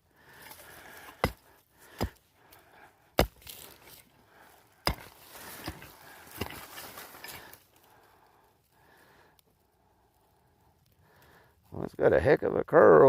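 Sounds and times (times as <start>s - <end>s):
digging tool chopping into soil: 0.4s - 2.2s, 3.2s - 4.0s, 4.8s - 7.6s.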